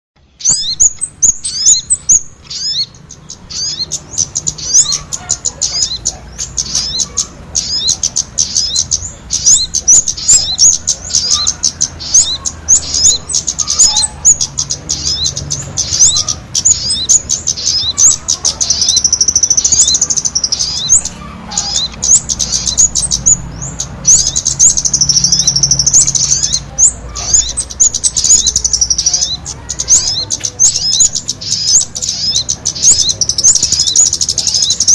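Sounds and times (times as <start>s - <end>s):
high sharp bird chirps: 0.2s - 34.9s
bird warbling trills: 0.4s - 34.9s.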